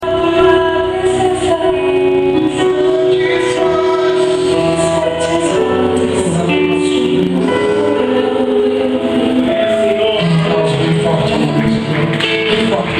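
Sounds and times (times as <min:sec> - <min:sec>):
woman singing: 0:00.0 - 0:10.4
band playing: 0:00.0 - 0:12.9.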